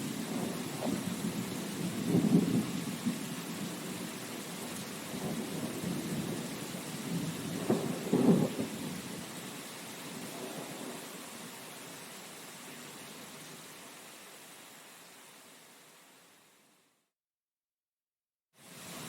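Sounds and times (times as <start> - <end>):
thunder rumbling: 0.0 - 4.0, 4.7 - 9.0
steady rain: 0.0 - 17.1, 18.6 - 19.0.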